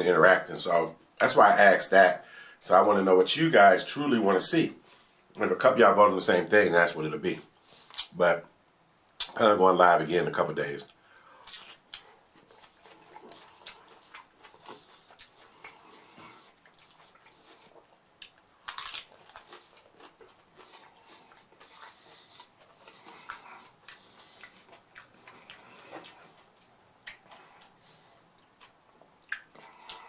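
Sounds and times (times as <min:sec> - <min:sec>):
person chewing crunchy tacos: 0:10.9 - 0:30.0.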